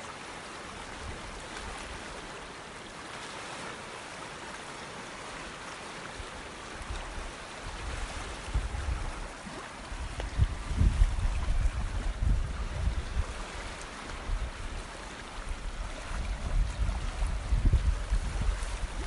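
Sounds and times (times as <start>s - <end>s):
flowing water: 0.0s - 19.0s
low rumbling gusts: 9.9s - 13.4s, 15.5s - 19.0s.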